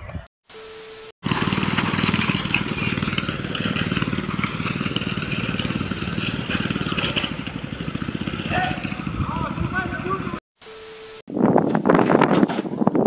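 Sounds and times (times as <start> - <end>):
small engine puttering: 1.2 - 10.4.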